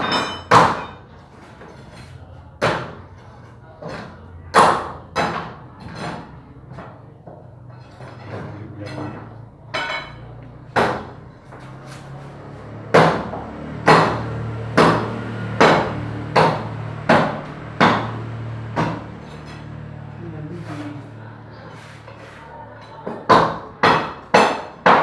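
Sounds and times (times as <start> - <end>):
sharp knocks: 12.4 - 19.9.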